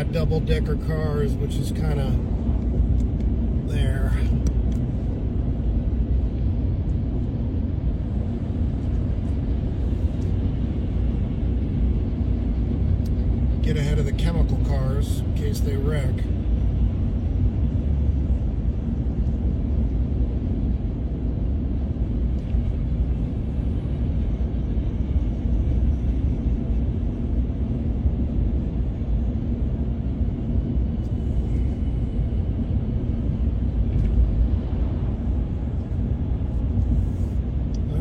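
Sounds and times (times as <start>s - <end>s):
truck engine and road noise: 0.0s - 38.0s.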